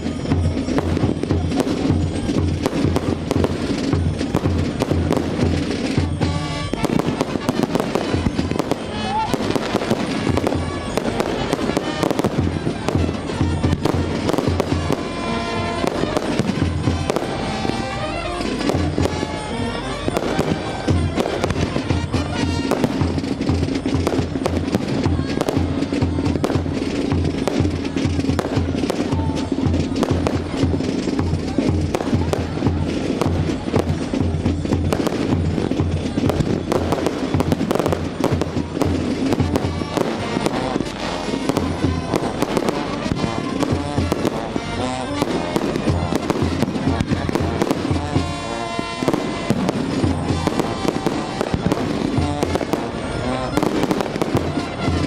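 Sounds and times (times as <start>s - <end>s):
fireworks bangs and crackles: 0.0s - 55.0s
music playing: 0.0s - 55.0s.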